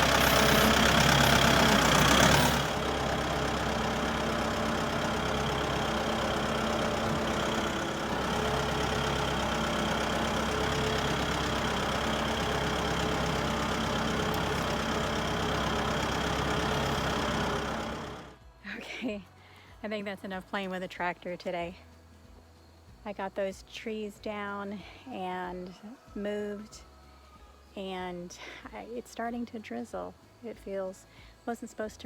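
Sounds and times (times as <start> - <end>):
tractor engine running: 0.0 - 18.4.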